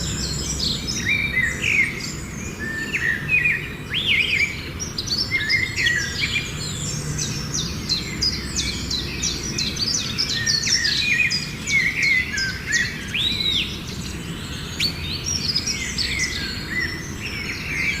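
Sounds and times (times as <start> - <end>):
low steady hum: 0.0 - 2.6
small birds chirping: 0.0 - 18.0.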